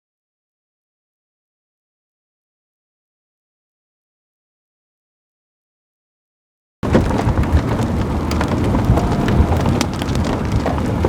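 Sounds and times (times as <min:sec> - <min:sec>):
storm wind buffeting microphone: 0:06.8 - 0:11.0.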